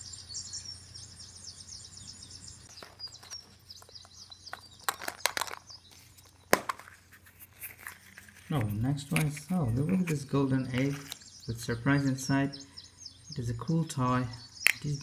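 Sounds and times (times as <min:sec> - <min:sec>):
bird chirping rapidly: 0:00.0 - 0:07.0, 0:08.7 - 0:15.0
wrapper crinkling and clicks: 0:02.7 - 0:10.2.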